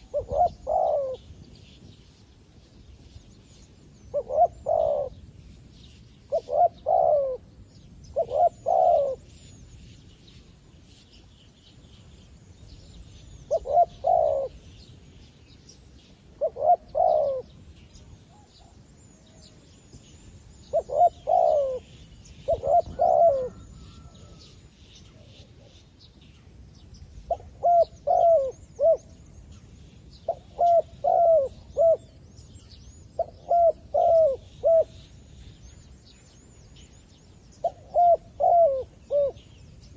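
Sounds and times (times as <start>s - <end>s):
dove decoy cooing: 0.0s - 1.2s, 4.1s - 5.2s, 6.3s - 7.5s, 8.2s - 9.2s, 13.5s - 14.6s, 16.4s - 17.6s, 20.7s - 24.4s, 27.3s - 29.1s, 30.3s - 32.1s, 33.2s - 35.0s, 37.6s - 39.5s
small birds chirping: 0.0s - 39.9s.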